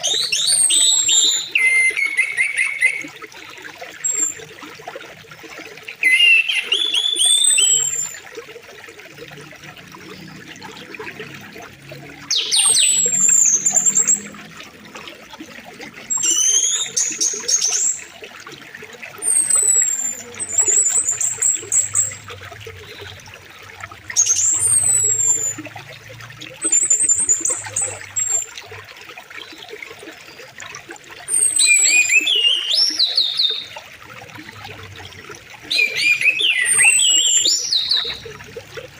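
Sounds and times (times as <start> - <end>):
songbird whistling song: 0.0 - 3.2, 6.0 - 8.2, 12.3 - 14.4, 16.1 - 18.1, 19.2 - 22.2, 24.2 - 25.6, 31.3 - 33.8, 35.7 - 38.3
stream water trickling: 0.0 - 38.9.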